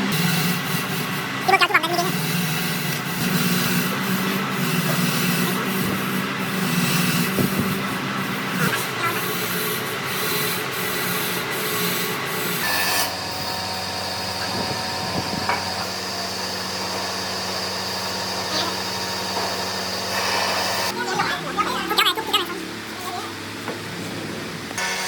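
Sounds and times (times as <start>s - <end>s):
motor hum: 0.0s - 25.0s
power sander on wood: 0.0s - 25.0s.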